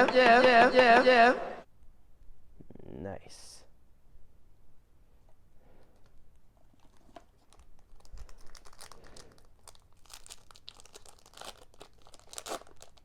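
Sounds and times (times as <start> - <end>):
foil wrapper tearing and crinkling: 6.7 - 13.0.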